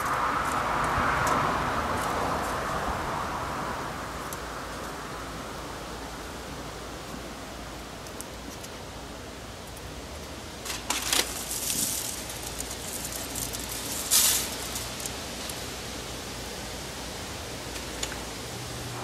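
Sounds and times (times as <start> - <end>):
steady background hiss: 0.0 - 19.0
aluminium foil crinkling: 10.6 - 15.2.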